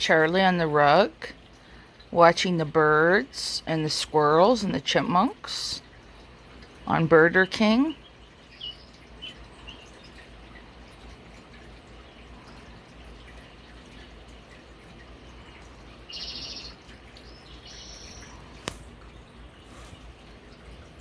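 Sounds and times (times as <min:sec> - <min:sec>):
small birds chirping: 0:05.6 - 0:20.6
high trilled bird calls: 0:07.8 - 0:10.2, 0:15.4 - 0:18.6.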